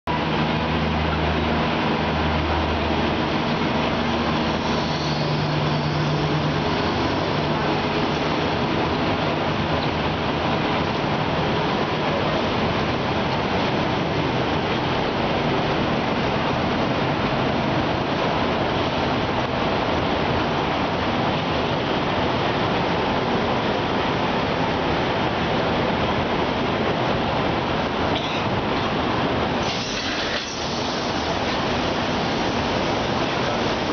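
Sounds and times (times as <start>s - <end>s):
train wheels rolling on rails: 0.1s - 33.9s.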